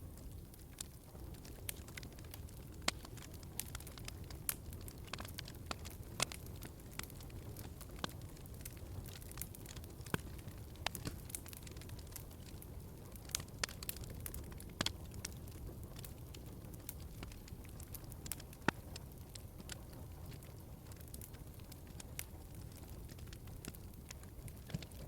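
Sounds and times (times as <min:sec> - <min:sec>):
wood fire crackling: 0:00.0 - 0:25.0
sharp pops and snaps: 0:09.2 - 0:11.8.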